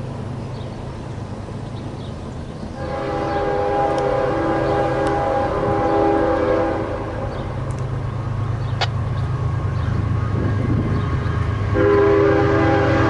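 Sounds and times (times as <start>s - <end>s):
locomotive engines rumbling: 0.0s - 13.0s
locomotive horn chord: 2.8s - 7.5s, 11.7s - 13.0s.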